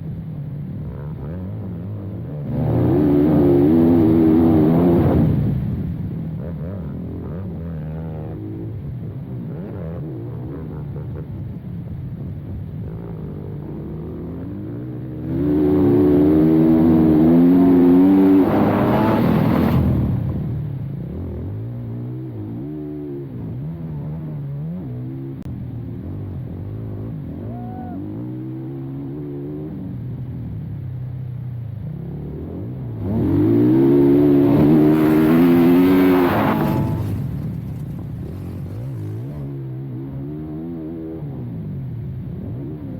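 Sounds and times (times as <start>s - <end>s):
dirt bike engine revving: 15.2s - 20.3s, 33.0s - 39.7s.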